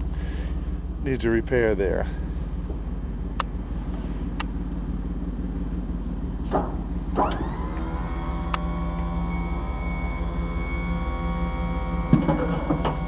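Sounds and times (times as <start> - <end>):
steady low hum: 0.0 - 13.0
hydraulic pump motor whining: 7.1 - 13.0.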